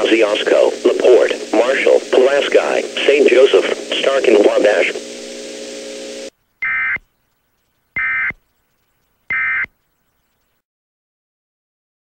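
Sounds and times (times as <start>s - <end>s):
digital data tone bursts: 0.1s - 7.1s, 7.9s - 8.4s, 9.3s - 9.8s.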